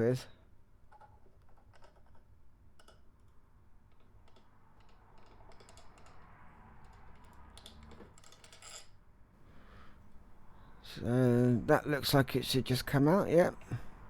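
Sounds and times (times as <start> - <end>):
light clicks of small parts: 0.9 - 8.9.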